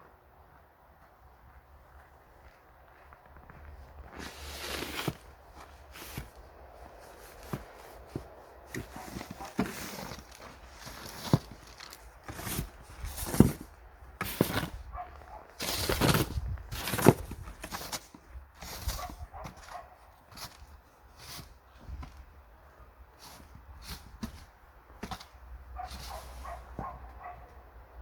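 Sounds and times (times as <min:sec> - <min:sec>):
footsteps crunching in snow: 0:01.5 - 0:22.4.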